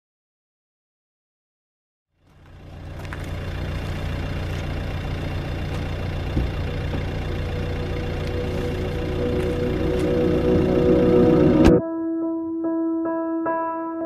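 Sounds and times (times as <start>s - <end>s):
car engine idling: 2.2s - 11.8s.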